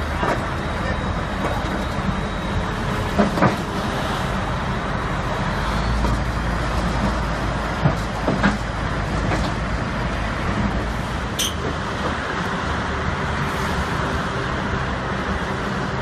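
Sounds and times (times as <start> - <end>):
heavy vehicle engine rumbling: 0.0 - 16.0.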